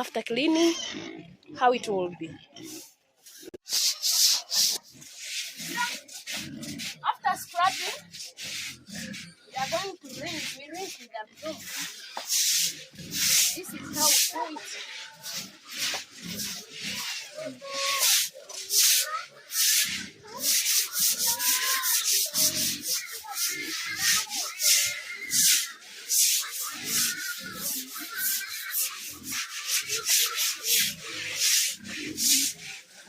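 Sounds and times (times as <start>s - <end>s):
pigs grunting and squealing: 0.0s - 33.0s
broom swishing on wet concrete: 2.7s - 33.0s.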